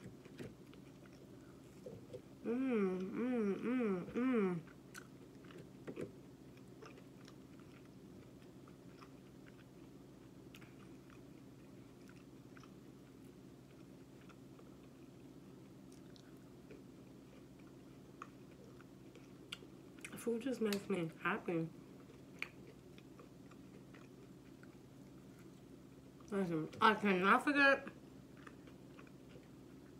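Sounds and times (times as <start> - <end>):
chewing with wet mouth clicks: 0.0 - 2.3, 4.6 - 15.2, 15.8 - 21.0, 21.9 - 26.3, 28.2 - 29.9
steady low hum: 0.0 - 29.9.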